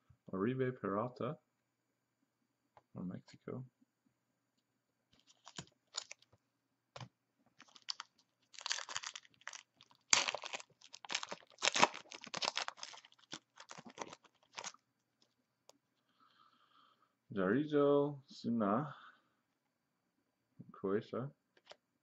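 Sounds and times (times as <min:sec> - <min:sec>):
foil wrapper crinkling: 0:05.2 - 0:06.3, 0:07.6 - 0:14.8.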